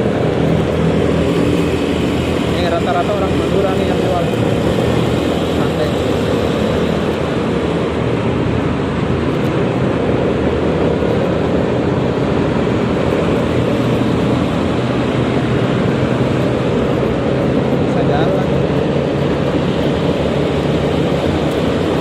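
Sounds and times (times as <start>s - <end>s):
road noise: 0.0s - 22.0s
scooter engine hum: 0.0s - 22.0s
wind rush: 0.0s - 22.0s.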